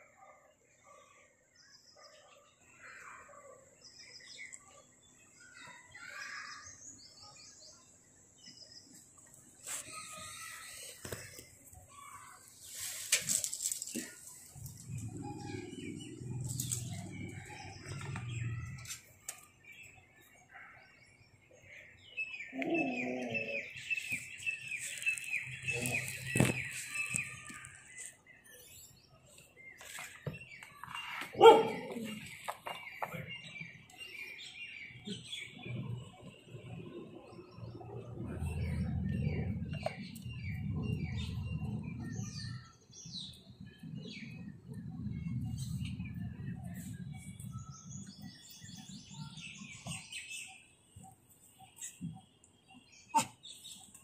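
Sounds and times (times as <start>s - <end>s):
birds chirping: 0.0s - 54.0s
low rumbling noise: 35.6s - 42.8s, 43.6s - 48.2s.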